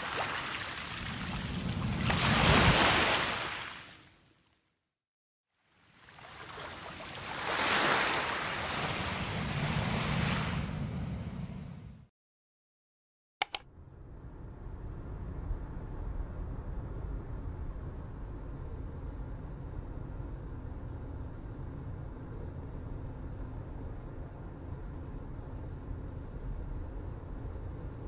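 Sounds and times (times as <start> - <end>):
sharp clicks: 13.4 - 13.6.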